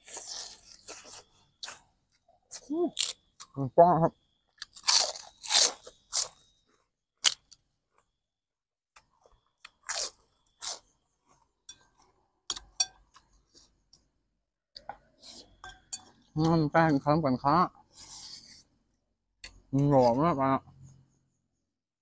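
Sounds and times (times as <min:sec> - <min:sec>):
person crunching crisp food: 0:02.5 - 0:03.3, 0:04.6 - 0:06.5, 0:07.2 - 0:08.1, 0:09.6 - 0:11.4.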